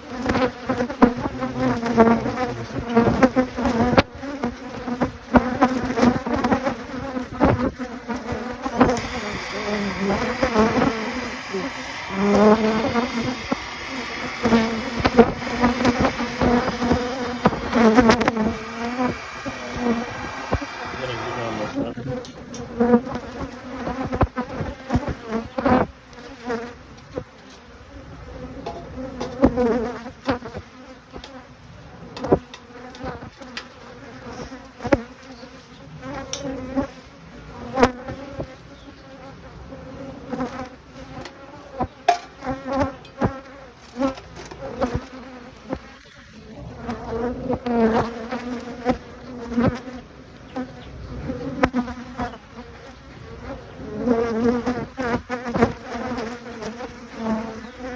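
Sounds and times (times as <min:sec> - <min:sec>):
honeybees buzzing: 0:00.0 - 0:26.7, 0:39.8 - 0:57.9.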